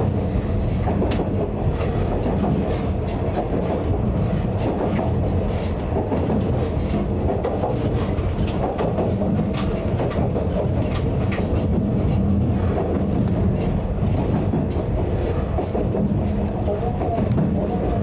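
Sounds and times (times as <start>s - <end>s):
electric railcar rumbling: 0.0s - 18.0s
wheels clicking on track: 0.0s - 18.0s.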